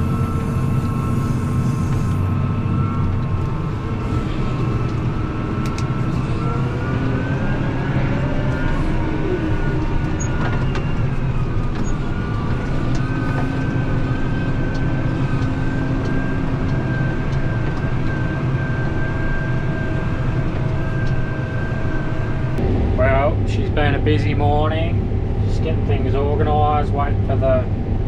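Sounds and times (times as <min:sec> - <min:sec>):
harvest machinery engine drone: 0:00.0 - 0:28.0
machinery whines: 0:00.0 - 0:28.0.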